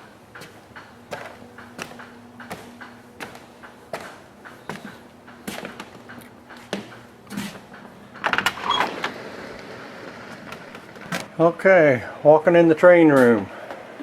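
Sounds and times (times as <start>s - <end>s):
footsteps climbing stairs: 0.0s - 8.8s
door rattling and opening: 6.9s - 11.4s.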